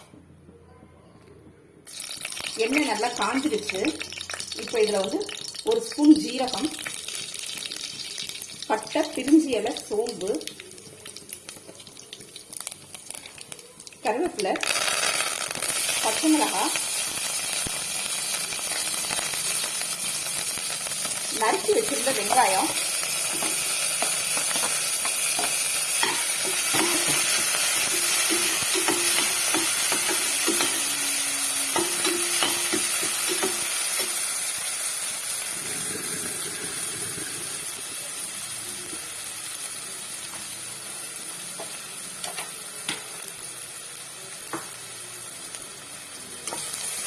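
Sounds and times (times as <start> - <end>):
onions sizzling in oil: 1.9 - 47.0
spoon tapping pan: 2.0 - 34.5
spoon stirring: 22.7 - 34.3.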